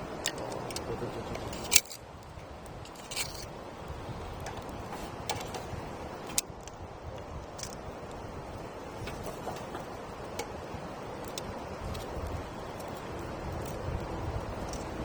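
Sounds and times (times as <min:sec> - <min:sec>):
burning wood popping: 0:00.0 - 0:08.2
campfire crackling: 0:00.0 - 0:15.0
steady rushing noise: 0:00.0 - 0:15.0.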